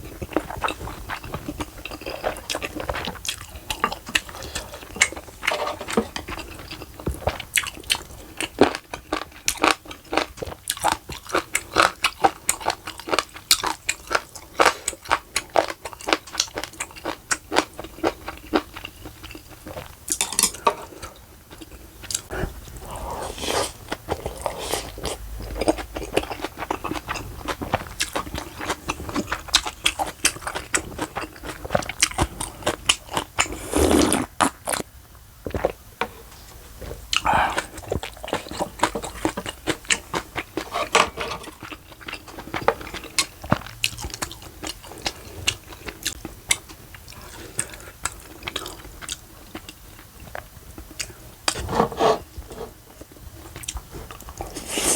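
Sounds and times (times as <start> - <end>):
person chewing crunchy food: 0.0 - 34.9, 37.0 - 54.9
wet mouth sounds: 33.4 - 34.4, 37.1 - 38.6.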